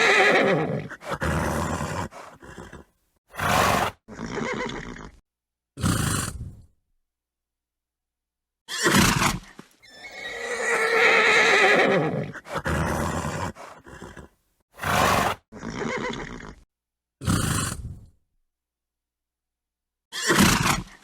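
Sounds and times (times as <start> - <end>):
horse snorting: 0.0 - 5.2, 5.8 - 6.6, 8.9 - 16.6, 17.2 - 18.1
horse whinny: 0.0 - 5.2, 8.7 - 16.6.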